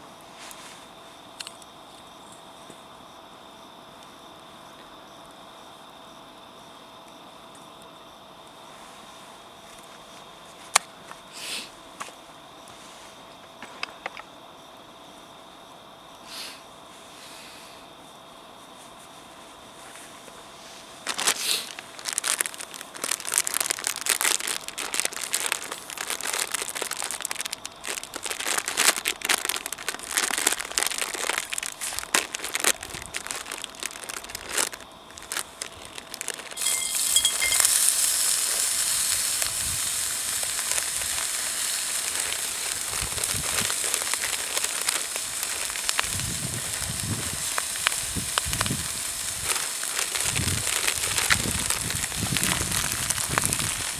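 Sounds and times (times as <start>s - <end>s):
campfire crackling and snapping: 21.1s - 53.9s
food sizzling: 21.5s - 53.9s.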